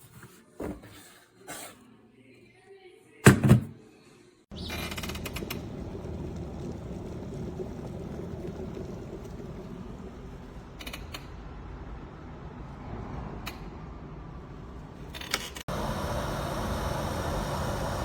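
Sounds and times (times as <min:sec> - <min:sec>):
kettle heating water: 0:04.5 - 0:10.8, 0:15.7 - 0:18.0.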